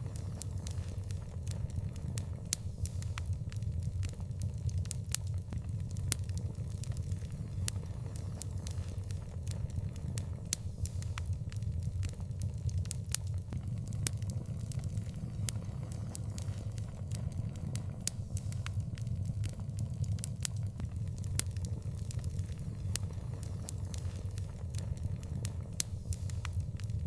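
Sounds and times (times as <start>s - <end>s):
low rumble: 13.5s - 20.9s
bonfire crackling and popping: 13.5s - 21.4s.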